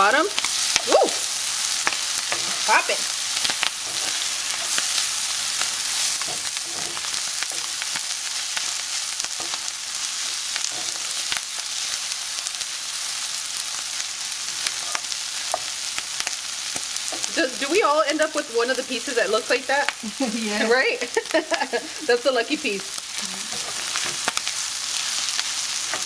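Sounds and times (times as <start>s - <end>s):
food sizzling in a skillet: 0.0s - 26.0s
wooden spoon scraping a pan: 2.2s - 3.0s, 3.8s - 7.8s.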